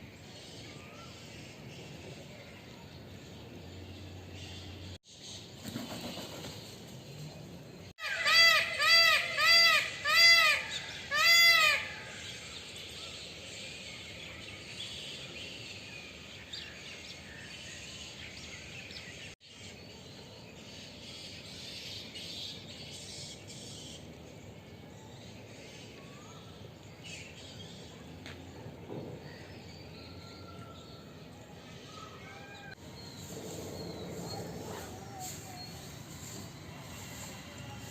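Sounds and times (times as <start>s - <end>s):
peacock honking calls: 8.0s - 12.2s
small bird chirps: 32.7s - 37.6s.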